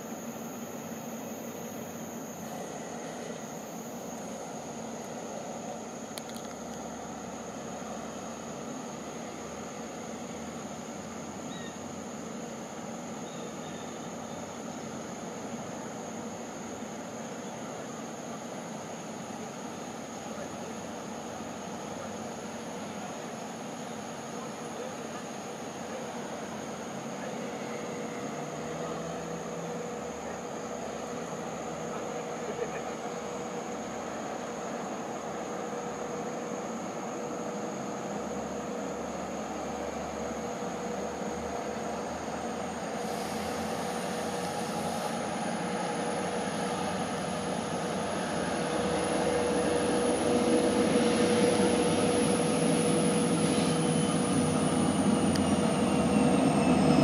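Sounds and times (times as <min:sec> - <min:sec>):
distant locomotive rumble: 0:00.0 - 0:57.0
insect drone: 0:00.0 - 0:57.0
faint bird chirps: 0:11.5 - 0:11.9, 0:13.2 - 0:14.6.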